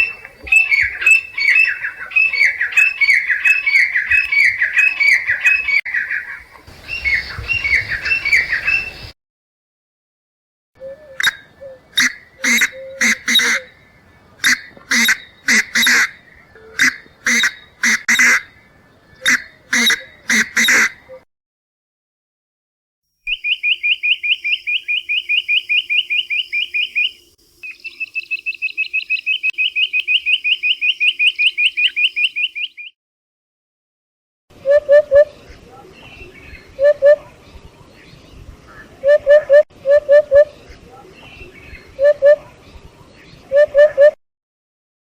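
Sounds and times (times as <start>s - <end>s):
harsh bird calls: 0.0s - 9.2s, 11.1s - 21.2s, 23.3s - 33.0s
high rapid bird trill: 0.0s - 9.2s, 11.2s - 18.6s, 19.2s - 21.1s, 23.3s - 32.9s.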